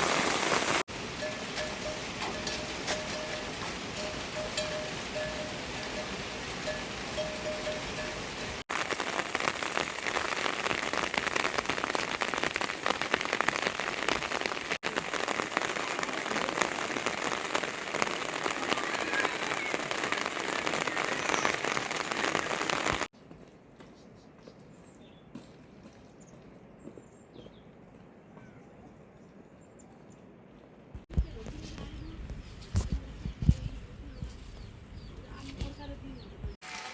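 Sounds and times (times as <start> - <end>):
heavy rain falling: 0.0 - 23.1.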